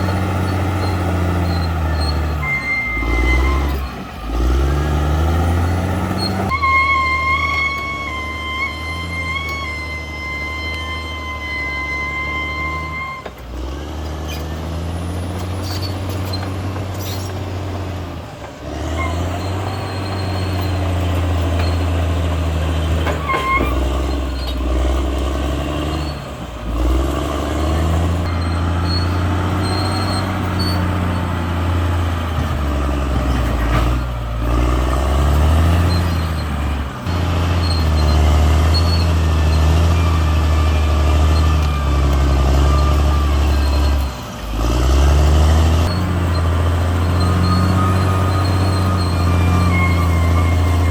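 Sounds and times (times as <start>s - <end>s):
bulldozer diesel engine under load: 0.0s - 50.9s.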